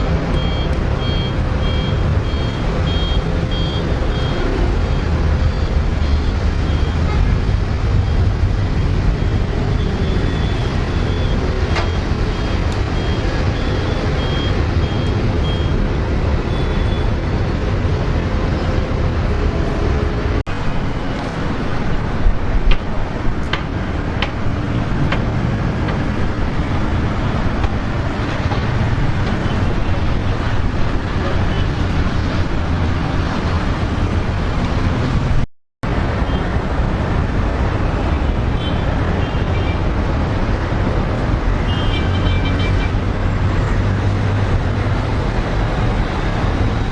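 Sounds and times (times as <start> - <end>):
backup alarm beeping: 0.0 - 7.1, 8.1 - 15.8
heavy diesel machinery rumbling: 0.0 - 46.9.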